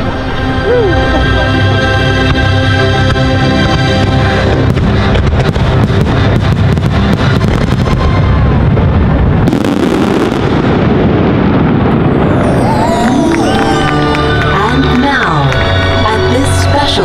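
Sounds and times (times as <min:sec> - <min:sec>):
fireworks bangs and crackles: 0:03.7 - 0:15.2
low rumble: 0:10.3 - 0:16.2.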